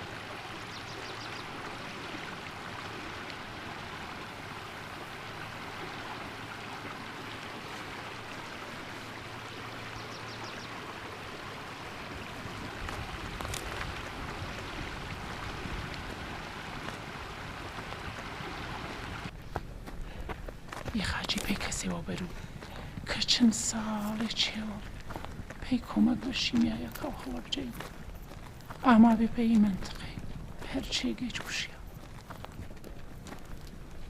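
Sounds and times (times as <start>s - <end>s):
running water rushing: 0.0s - 19.4s.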